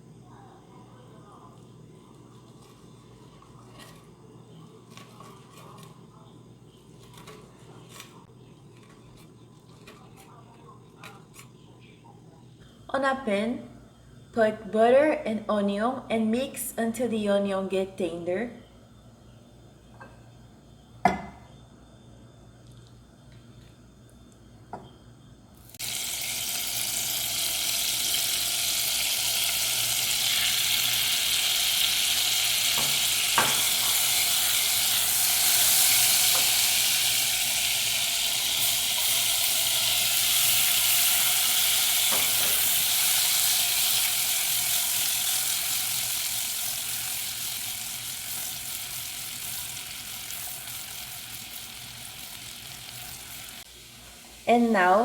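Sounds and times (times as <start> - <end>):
onion sizzling in a pan: 25.6 - 55.0.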